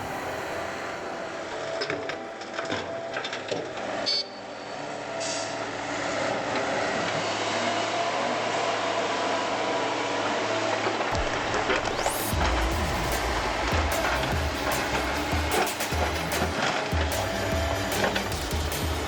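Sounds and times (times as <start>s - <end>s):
heavy machine engine running: 0.0s - 19.0s
sharp high-pitched sound: 11.2s - 18.1s.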